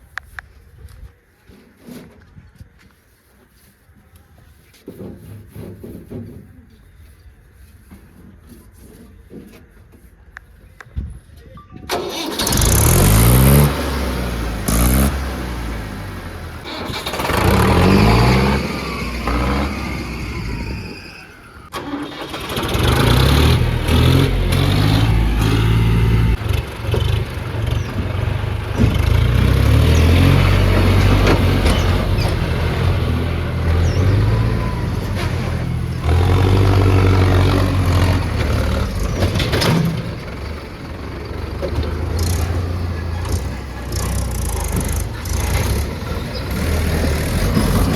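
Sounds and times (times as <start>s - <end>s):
tractor engine revving: 11.9s - 47.9s.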